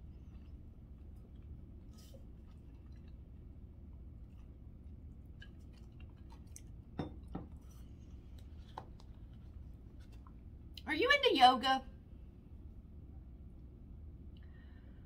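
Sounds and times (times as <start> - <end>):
low room hum: 0.0 - 15.0
person chewing: 4.2 - 6.9.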